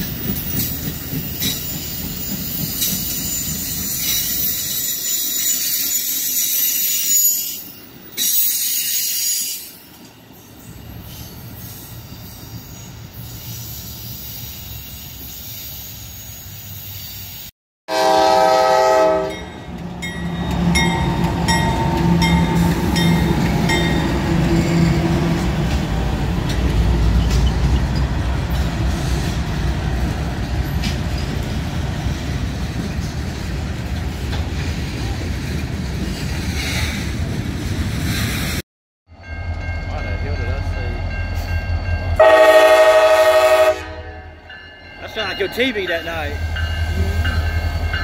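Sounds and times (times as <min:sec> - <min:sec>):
train rumbling and clattering: 0:00.0 - 0:12.8, 0:19.3 - 0:43.6, 0:44.3 - 0:48.0
locomotive horn chord: 0:17.9 - 0:19.5, 0:42.2 - 0:44.4
bell ringing steadily: 0:39.2 - 0:42.2, 0:44.2 - 0:48.0.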